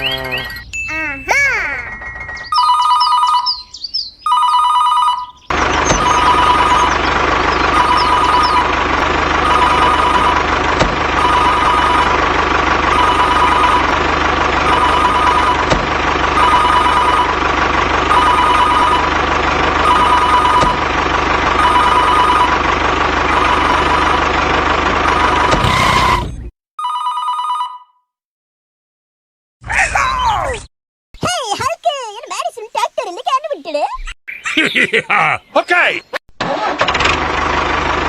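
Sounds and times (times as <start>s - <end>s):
electronic two-tone ringing: 1.8s - 7.1s, 7.7s - 8.8s, 9.4s - 10.4s, 11.2s - 12.2s, 12.9s - 13.9s, 14.7s - 15.7s, 16.4s - 17.4s, 18.1s - 19.1s, 19.8s - 20.7s, 21.6s - 22.6s.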